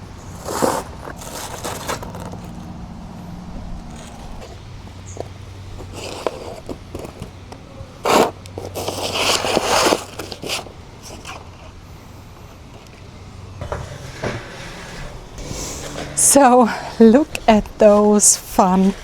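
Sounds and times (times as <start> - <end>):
loud scrape: 0.2 - 2.6, 8.0 - 11.7, 13.5 - 19.0
paper rustling: 0.4 - 2.6, 5.8 - 11.8.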